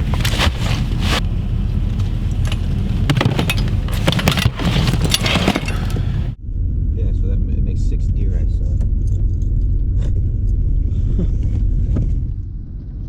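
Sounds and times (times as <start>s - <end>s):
clicks and rattles: 0.0s - 6.4s
car engine low rumble: 0.0s - 6.9s.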